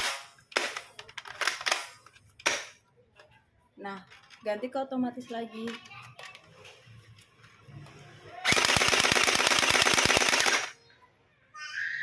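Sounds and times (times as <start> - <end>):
toy blaster rapid shots: 8.4 - 10.8.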